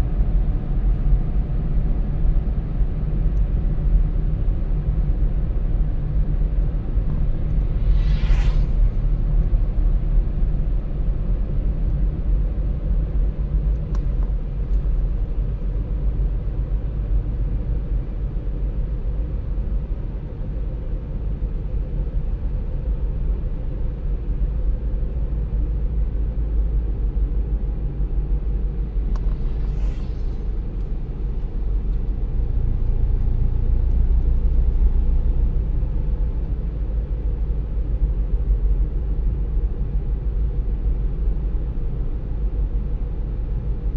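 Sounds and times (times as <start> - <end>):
car tyres and engine rumble: 0.0 - 43.9
brief hiss: 7.2 - 10.0, 28.9 - 32.0.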